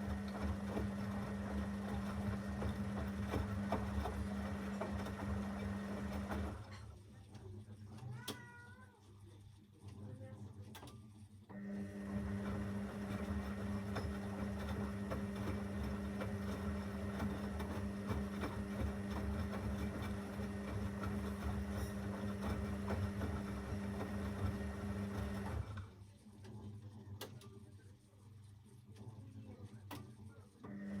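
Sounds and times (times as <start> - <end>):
washing machine humming: 0.0 - 8.8, 11.5 - 31.0.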